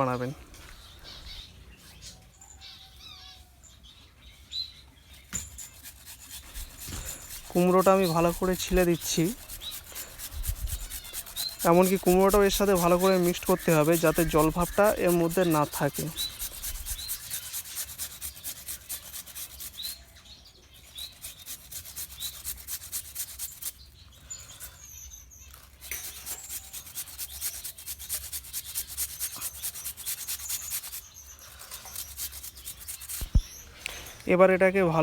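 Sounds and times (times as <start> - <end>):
small birds chirping: 0.0 - 35.0
pumpkin being scraped: 5.4 - 20.1, 20.8 - 23.8, 25.5 - 33.8.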